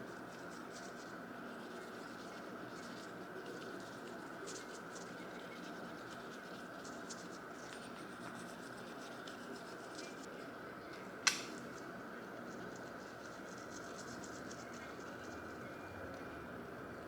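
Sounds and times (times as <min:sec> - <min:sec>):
light scratching and rubbing: 0:00.1 - 0:10.5
sharp click: 0:11.2 - 0:11.6.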